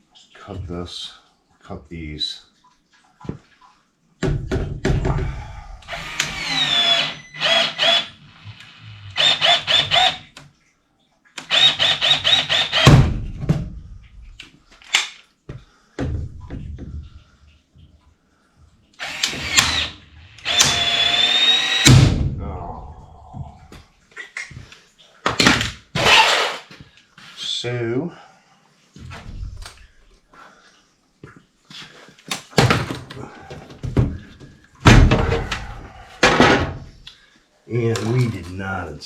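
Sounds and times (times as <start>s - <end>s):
power tool motor whine bursts: 5.9s - 8.1s.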